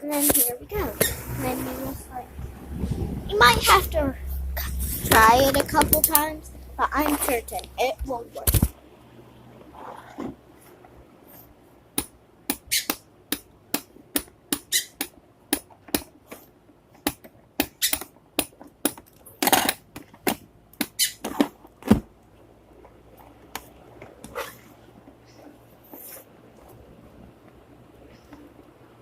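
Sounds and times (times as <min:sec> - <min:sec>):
short sharp squeaks and clicks: 0:12.6 - 0:13.0, 0:14.6 - 0:15.1, 0:17.7 - 0:18.1, 0:20.9 - 0:21.2.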